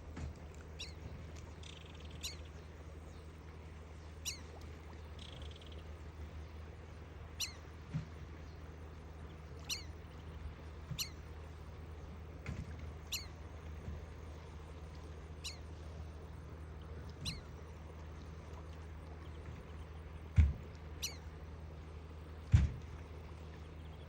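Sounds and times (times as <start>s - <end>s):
ducklings peeping: 17.2s - 17.4s
soft low thumps: 20.3s - 20.7s.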